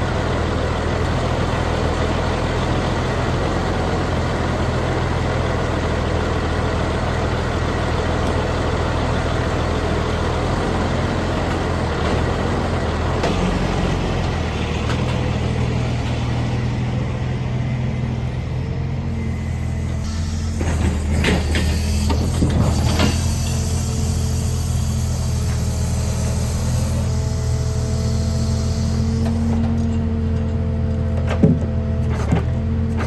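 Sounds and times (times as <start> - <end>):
truck diesel engine idling: 0.0 - 30.9.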